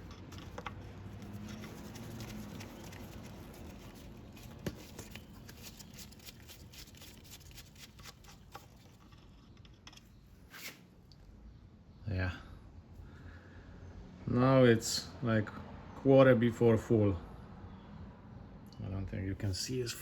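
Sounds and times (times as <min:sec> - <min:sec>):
hands rustling: 0:00.0 - 0:08.8.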